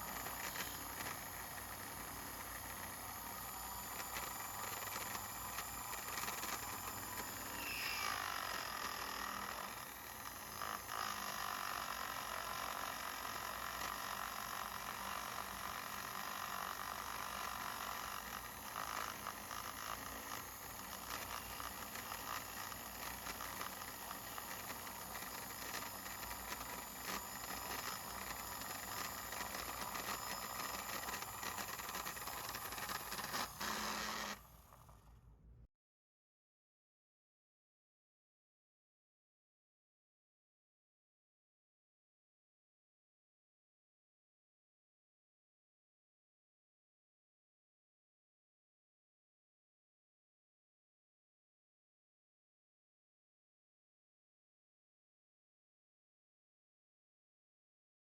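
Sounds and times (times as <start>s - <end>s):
small electric motor whining: 0.0s - 35.4s.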